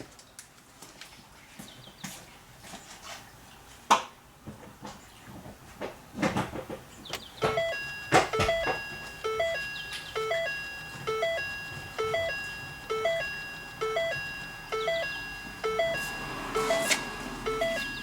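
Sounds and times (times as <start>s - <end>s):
car warning chime two-note tone: 7.4s - 18.0s.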